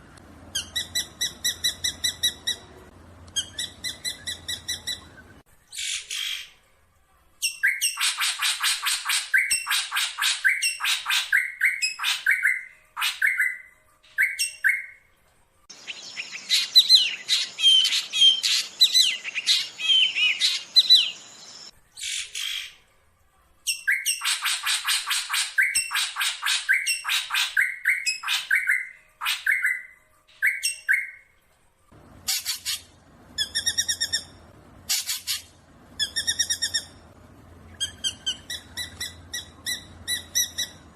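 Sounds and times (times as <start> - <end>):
bird scratchy chattering: 32.2 - 36.9
bird harsh buzzy calls: 32.2 - 37.0.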